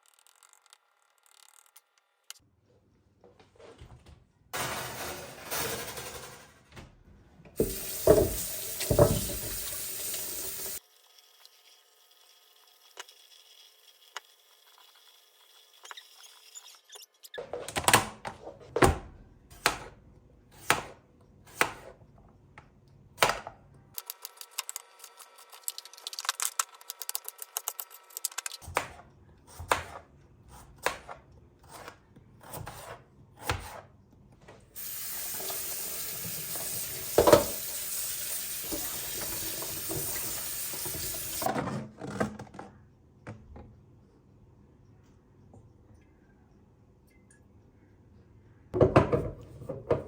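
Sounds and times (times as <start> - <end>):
utensils knocking on dishes: 7.6 - 9.6.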